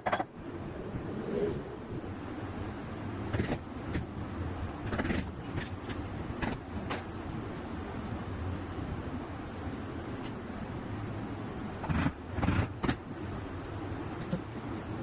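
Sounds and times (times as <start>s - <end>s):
low hum: 0.0s - 4.8s.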